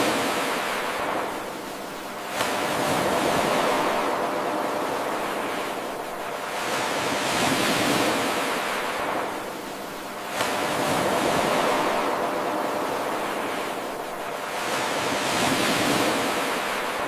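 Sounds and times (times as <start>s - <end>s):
ocean surf washing: 0.0s - 17.0s.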